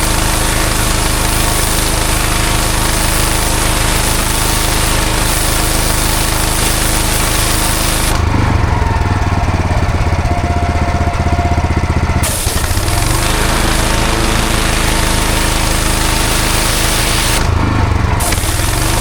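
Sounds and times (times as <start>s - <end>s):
water jet hissing on paving: 0.0s - 8.3s, 12.2s - 19.0s
pressure washer engine and pump: 0.0s - 19.0s.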